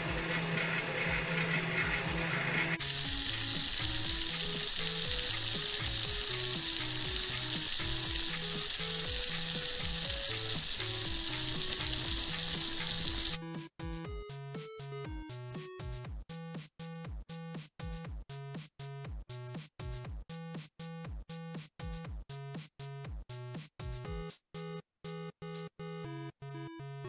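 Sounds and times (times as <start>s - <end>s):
background music: 0.0s - 18.0s
fish sizzling in microwave: 0.2s - 13.4s.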